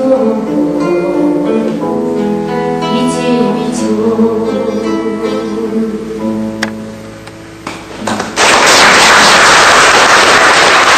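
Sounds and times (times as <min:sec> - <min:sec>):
acoustic guitar chords: 0:00.0 - 0:08.4.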